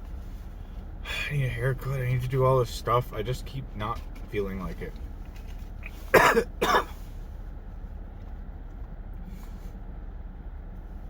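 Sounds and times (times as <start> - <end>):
person coughing: 6.1 - 7.0.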